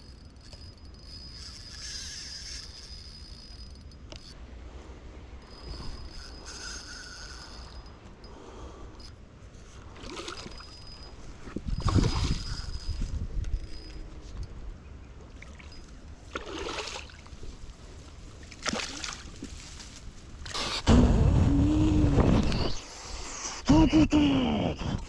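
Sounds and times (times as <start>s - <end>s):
water splashing and sloshing: 15.4s - 20.1s.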